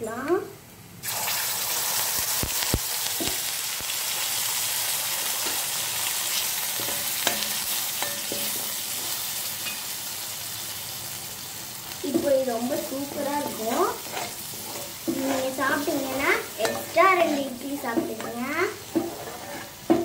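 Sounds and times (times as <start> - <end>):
food sizzling in hot oil: 1.0 - 20.0
spatula clinking against pan: 6.8 - 8.8, 13.6 - 20.0.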